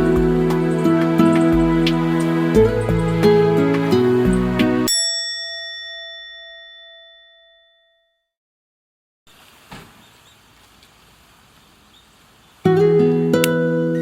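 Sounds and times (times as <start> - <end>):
bell-like chime ringing: 4.8 - 8.2
faint steady hiss: 9.3 - 13.6.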